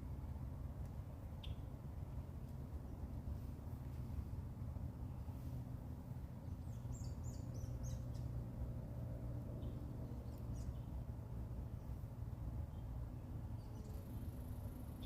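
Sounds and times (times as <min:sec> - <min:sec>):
steady low rumble: 0:00.0 - 0:15.0
blackbird chirping: 0:01.4 - 0:01.7, 0:06.4 - 0:08.4, 0:09.6 - 0:11.0.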